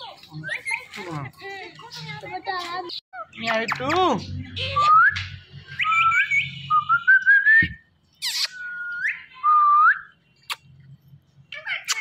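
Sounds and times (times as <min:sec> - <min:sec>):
parrot whistling: 0:05.7 - 0:07.6.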